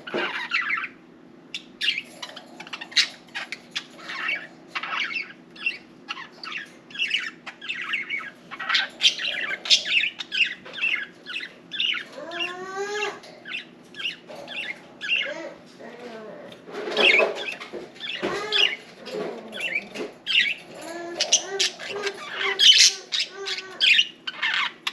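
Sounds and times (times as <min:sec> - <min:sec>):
budgerigars chattering: 0:00.0 - 0:15.5, 0:16.8 - 0:24.9.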